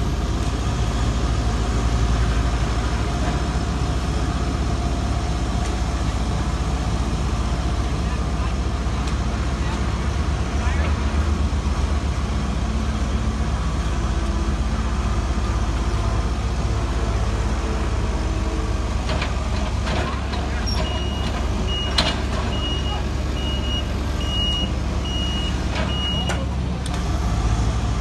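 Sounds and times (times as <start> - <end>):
diesel machinery running: 0.0 - 28.0
reversing alarm beeping: 20.7 - 26.4.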